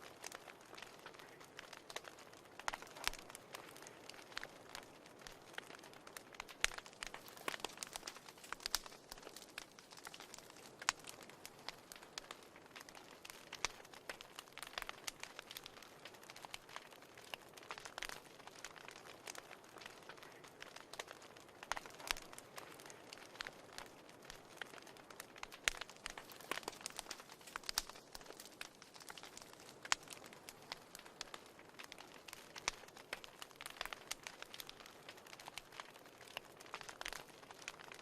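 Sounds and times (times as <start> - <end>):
wood fire crackling: 0.0 - 38.0.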